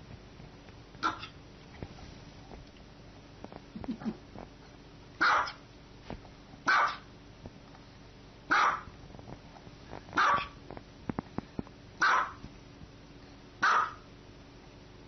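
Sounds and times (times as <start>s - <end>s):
dog barking: 1.0s - 1.4s, 5.2s - 5.6s, 6.7s - 7.1s, 8.5s - 8.9s, 10.2s - 10.6s, 12.0s - 12.4s, 13.6s - 14.1s.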